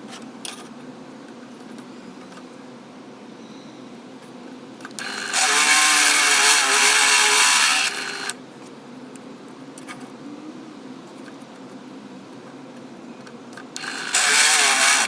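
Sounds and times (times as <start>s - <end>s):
belt grinder humming: 5.0s - 8.4s, 13.8s - 15.0s
harsh grinding: 5.0s - 8.4s, 13.8s - 15.0s.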